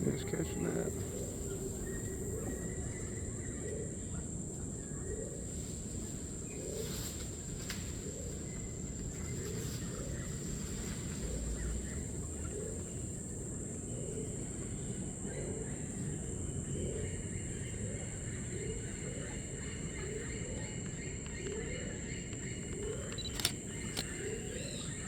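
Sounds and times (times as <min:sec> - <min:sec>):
high insect drone: 0:00.0 - 0:25.0
faint high chirps: 0:18.6 - 0:25.0.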